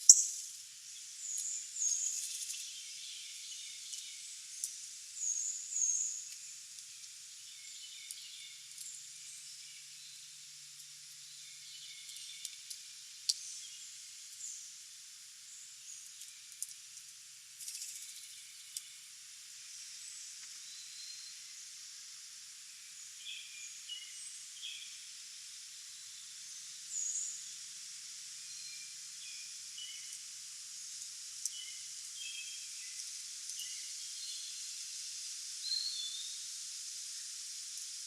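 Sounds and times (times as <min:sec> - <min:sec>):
faint bird chirps: 0:00.0 - 0:10.3
steady high hiss: 0:00.0 - 0:38.0.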